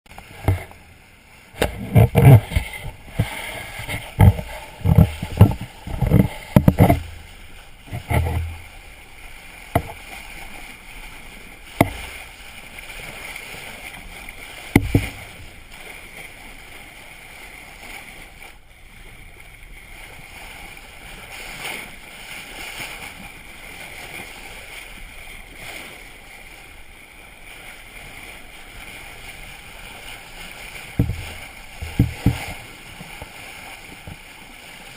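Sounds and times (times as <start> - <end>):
water washing along boat hull: 0.0 - 34.9
low thumps: 1.6 - 7.3.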